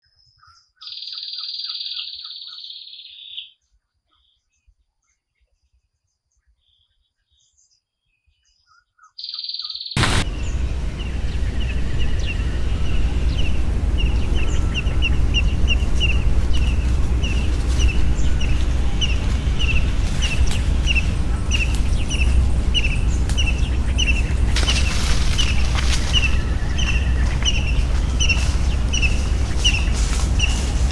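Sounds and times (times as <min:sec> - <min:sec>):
bird chirping: 0:10.0 - 0:30.9
low outdoor rumble: 0:10.0 - 0:30.9.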